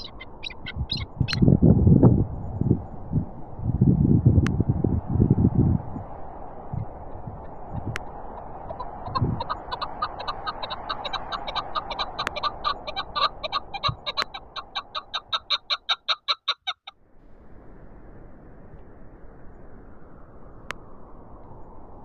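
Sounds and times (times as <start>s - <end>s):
partridge calling rapid notes: 0.0s - 1.4s, 7.4s - 16.9s
wind noise: 0.0s - 16.1s, 17.0s - 22.0s.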